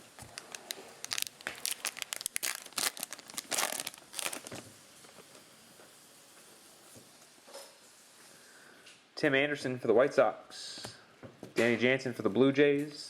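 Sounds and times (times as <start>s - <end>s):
cellophane wrapper tearing and crinkling: 0.0s - 4.6s.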